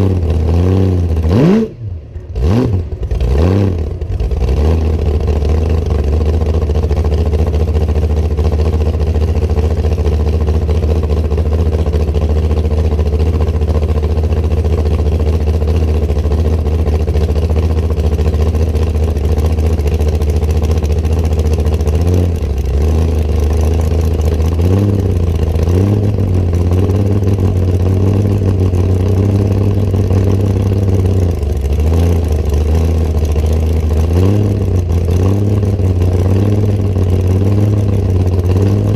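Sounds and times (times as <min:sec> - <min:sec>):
car engine revving while driving: 0:00.0 - 0:07.4, 0:21.5 - 0:38.9.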